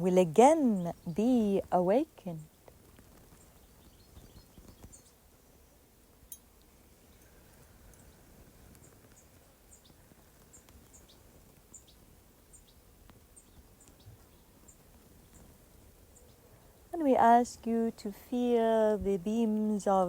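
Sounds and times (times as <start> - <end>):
small bird chirping: 2.3 - 5.8, 7.0 - 15.5.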